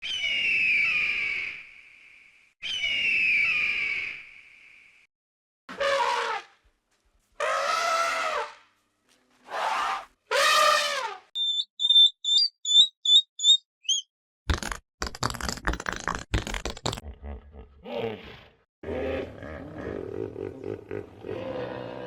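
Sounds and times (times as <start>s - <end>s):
high animal squeaks: 11.4s - 14.1s.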